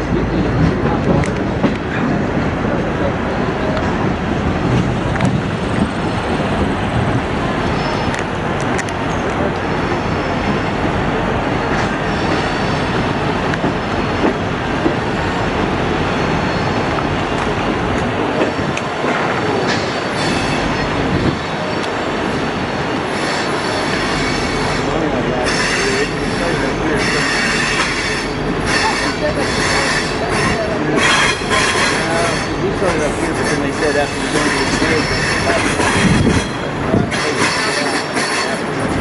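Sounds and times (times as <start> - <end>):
train wheels rumbling on rails: 0.0 - 39.0
high wheel squeal: 7.6 - 8.2, 11.7 - 13.0, 16.1 - 17.0, 19.5 - 21.0, 23.0 - 38.8.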